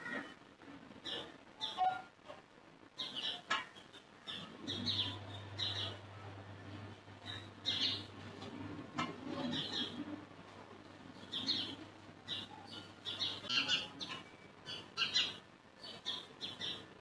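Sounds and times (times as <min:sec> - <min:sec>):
birds chirping: 0:00.9 - 0:02.1, 0:03.0 - 0:10.3, 0:10.9 - 0:17.0
low steady hum: 0:04.1 - 0:15.8.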